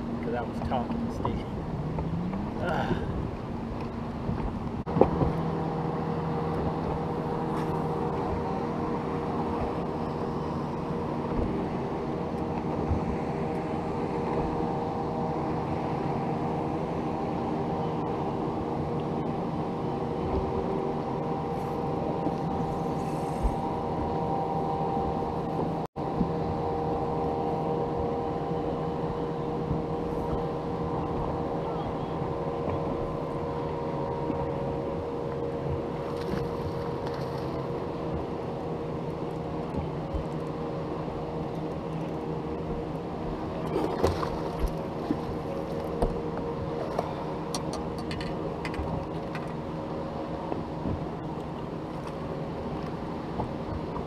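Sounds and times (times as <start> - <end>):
boat motor running: 0.0 - 54.0.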